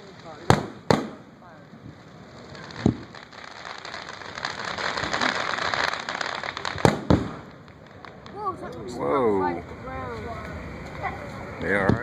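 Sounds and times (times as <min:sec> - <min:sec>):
firework crackling: 0:00.0 - 0:12.0
firework boom: 0:06.7 - 0:08.5.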